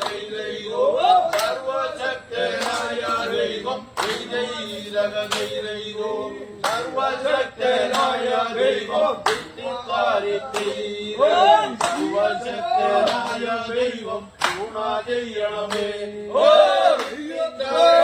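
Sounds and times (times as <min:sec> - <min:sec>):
sharp claps: 0:00.0 - 0:00.5, 0:01.2 - 0:05.8, 0:06.6 - 0:07.0, 0:07.7 - 0:09.7, 0:10.4 - 0:11.0, 0:11.7 - 0:14.9, 0:15.6 - 0:16.0, 0:16.9 - 0:17.4
men singing in chorus: 0:00.0 - 0:18.0.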